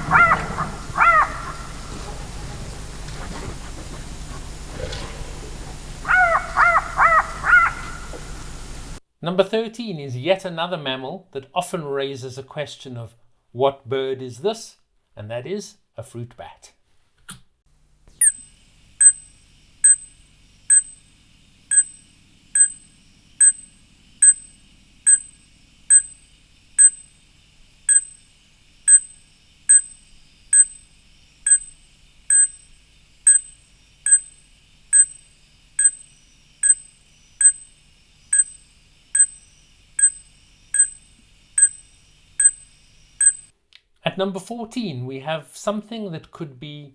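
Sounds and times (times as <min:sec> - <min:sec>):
fruit bat calling: 0:00.0 - 0:09.0, 0:18.1 - 0:43.5.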